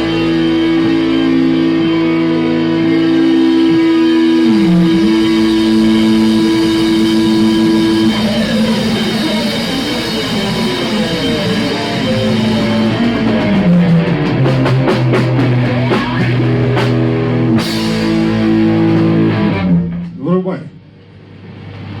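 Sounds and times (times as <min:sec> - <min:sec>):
drum kit hits and fills: 0:00.0 - 0:20.2
electric guitar: 0:00.0 - 0:20.2
bass guitar: 0:00.0 - 0:22.0.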